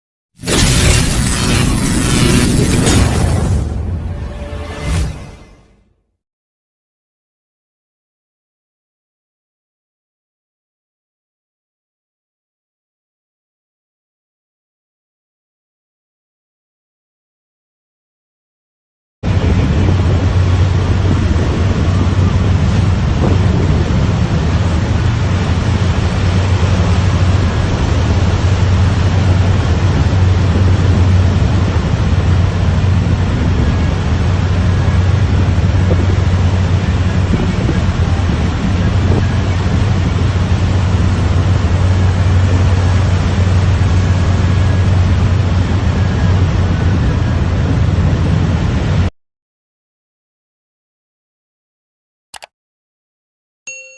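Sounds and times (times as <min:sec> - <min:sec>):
ship engine droning: 0:00.4 - 0:05.8, 0:19.2 - 0:49.1.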